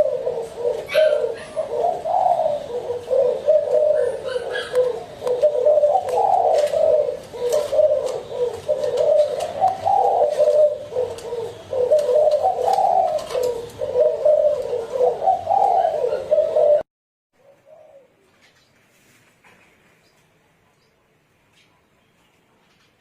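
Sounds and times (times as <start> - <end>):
doves cooing: 0.0 - 18.7.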